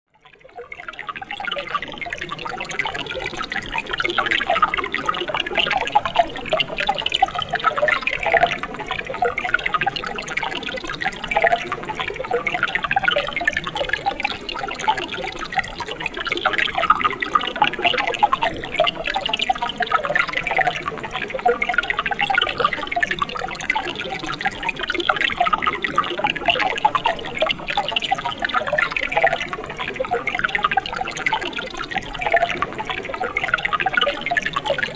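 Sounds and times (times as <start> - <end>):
water splashing and gurgling: 0.4 - 34.9
stream water flowing: 0.6 - 34.9.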